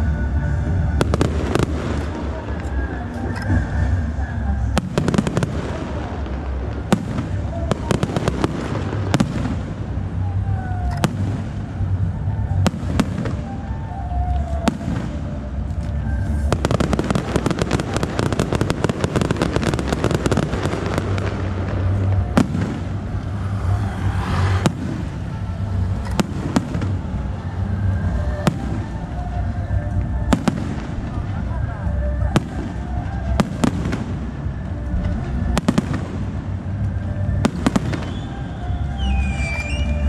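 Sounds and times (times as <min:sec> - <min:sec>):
rapid firework crackling: 0:16.3 - 0:29.2.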